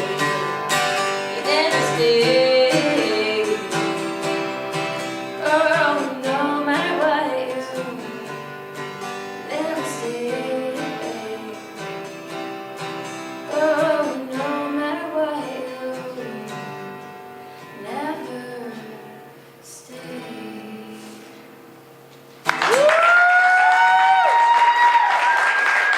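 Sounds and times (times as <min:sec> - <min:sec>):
woman singing: 0:00.0 - 0:04.5, 0:05.2 - 0:08.5, 0:09.4 - 0:11.9, 0:13.4 - 0:17.0, 0:17.6 - 0:21.5
acoustic guitar: 0:00.0 - 0:25.9
applause: 0:22.4 - 0:25.9
audience cheering and whooping: 0:22.5 - 0:25.9.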